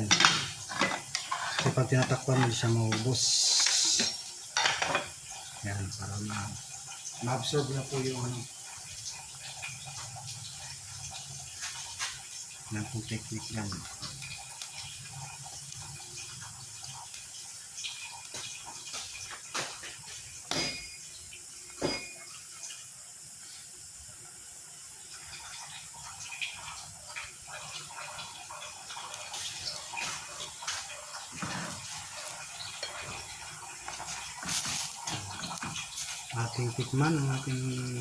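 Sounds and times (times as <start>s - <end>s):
pot boiling and bubbling: 0.0s - 38.0s.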